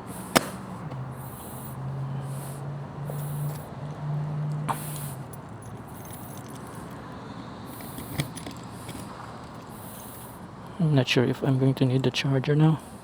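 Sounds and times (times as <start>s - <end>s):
bag rustling: 0.0s - 1.8s
light jingling: 0.0s - 3.7s, 4.3s - 10.3s
sharp clicks: 0.3s - 1.0s.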